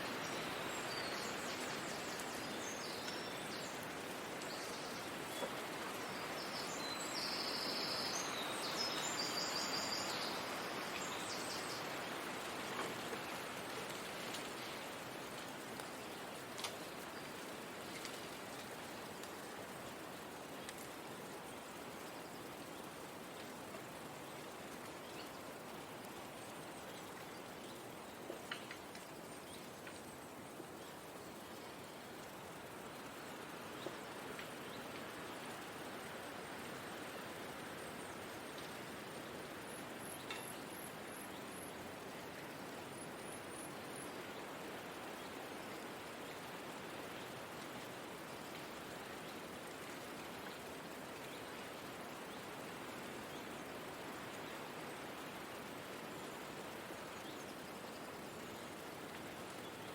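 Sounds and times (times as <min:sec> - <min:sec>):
soft forest ambience hiss: 0:00.0 - 0:59.9
faint ticks: 0:01.1 - 0:06.7, 0:12.4 - 0:44.2
small tick: 0:16.6 - 0:16.8, 0:20.6 - 0:20.9, 0:28.3 - 0:29.1, 0:29.8 - 0:30.1, 0:40.1 - 0:40.5.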